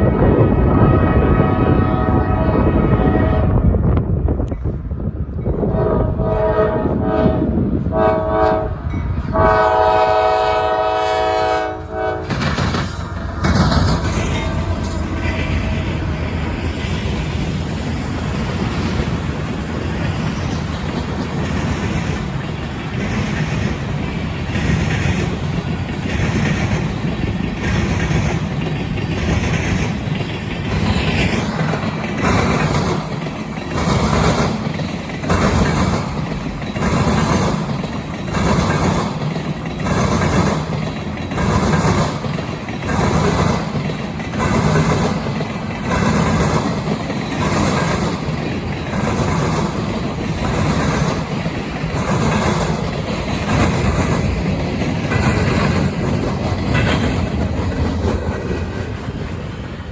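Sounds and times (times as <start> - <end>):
freight train rolling past: 0.0 - 59.9
rhythmic clatter of wheels: 12.2 - 59.9.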